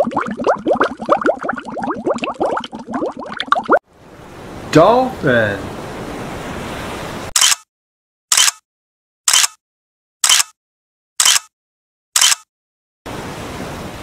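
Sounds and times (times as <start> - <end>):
ocean surf: 3.9 - 7.3, 13.1 - 14.0
camera shutter clicks: 7.4 - 7.6, 8.3 - 8.6, 9.3 - 9.6, 10.2 - 10.6, 11.2 - 11.5, 12.2 - 12.5.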